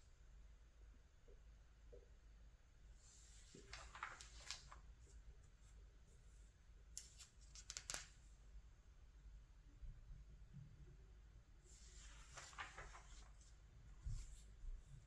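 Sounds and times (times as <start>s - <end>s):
catalog pages rustling: 3.1s - 4.9s, 11.7s - 14.5s.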